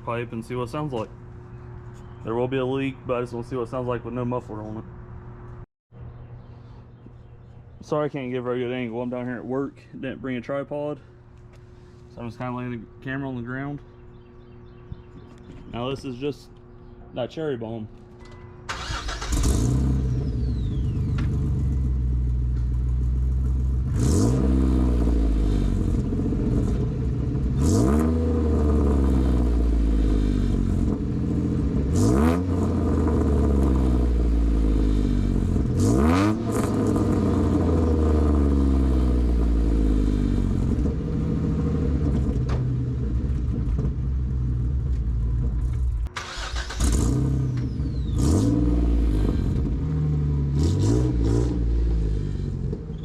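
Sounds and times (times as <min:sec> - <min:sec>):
car engine idling and revving: 0:18.2 - 0:53.0.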